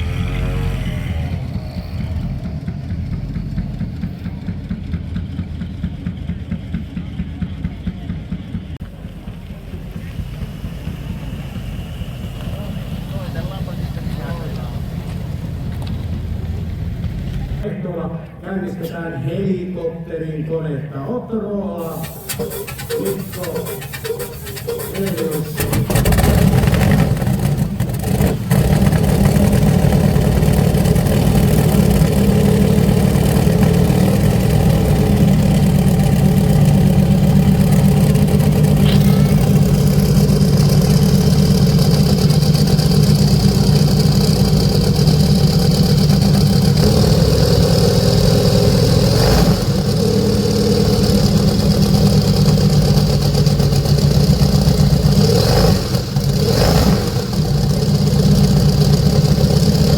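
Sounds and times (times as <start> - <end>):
helicopter piston engine running: 1.4 - 17.6, 21.8 - 59.9
high whine: 8.8 - 17.6, 29.4 - 49.1.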